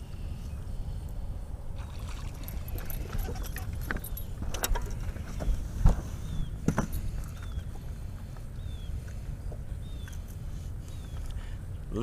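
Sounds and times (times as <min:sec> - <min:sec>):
low steady rumble: 0:00.0 - 0:12.0
knocks and clatter in a boat: 0:02.6 - 0:07.8
bird chirping: 0:07.4 - 0:07.8, 0:08.6 - 0:11.4.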